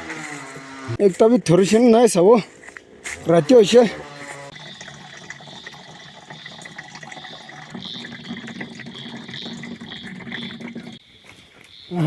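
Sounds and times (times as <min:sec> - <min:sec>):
water running: 0:03.3 - 0:11.0.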